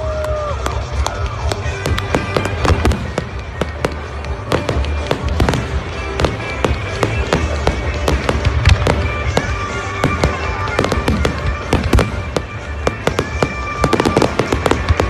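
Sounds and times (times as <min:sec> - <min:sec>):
fireworks popping and crackling: 0:00.2 - 0:15.0.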